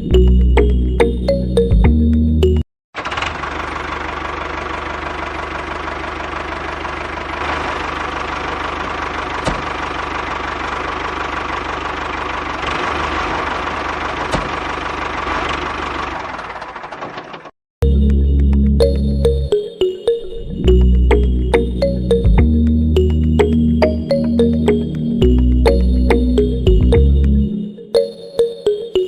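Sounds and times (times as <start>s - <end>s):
small engine knocking rattle: 3.0s - 17.5s.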